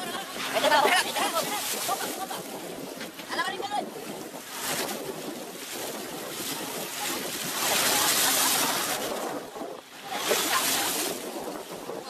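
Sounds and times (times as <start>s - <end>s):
water splashing against boat hull: 0.0s - 12.0s
fish thrashing at surface: 10.0s - 11.2s.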